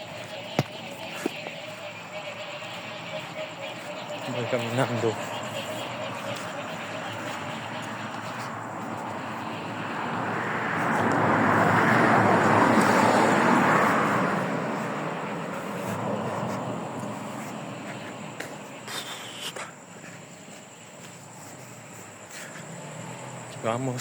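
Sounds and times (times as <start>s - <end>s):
car passing by: 0.0s - 24.0s.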